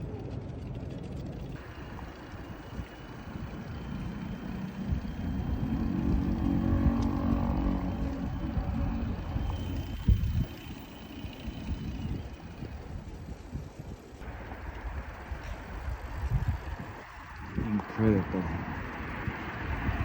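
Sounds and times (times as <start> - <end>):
motor vehicle passing: 0.0 - 20.0
wind rumble on microphone: 1.1 - 20.0.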